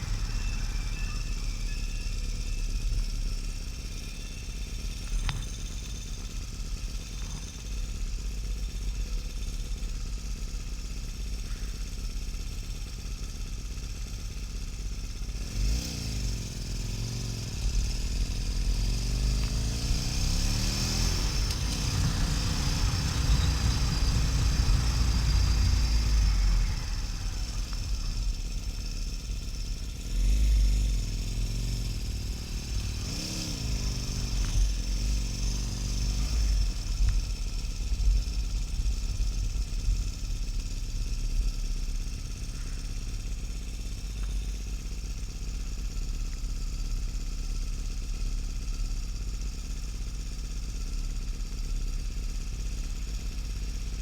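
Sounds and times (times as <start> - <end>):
wind and road noise: 0.0 - 7.9, 15.4 - 41.6
motorcycle engine running: 0.0 - 54.0.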